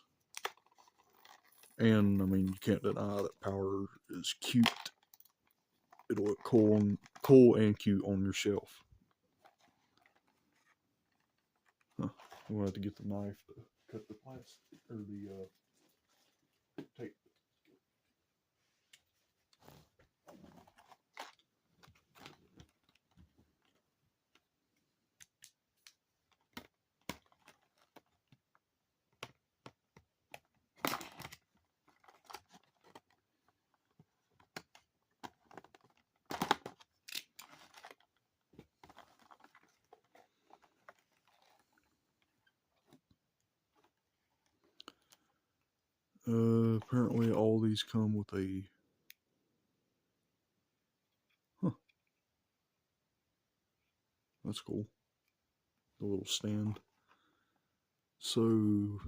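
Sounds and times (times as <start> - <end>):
small clicks and rustles: 0.1 - 1.8, 8.7 - 12.5, 18.8 - 45.7.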